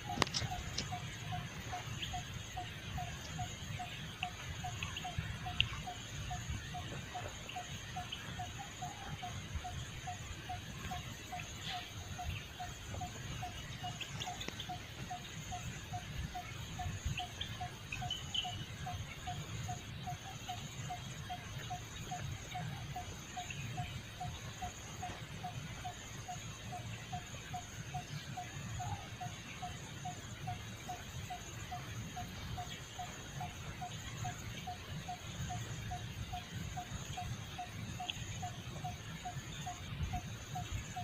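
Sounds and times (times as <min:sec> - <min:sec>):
faint ticks: 0:00.0 - 0:08.5, 0:09.1 - 0:15.4, 0:30.6 - 0:41.0
high insect drone: 0:00.0 - 0:41.0.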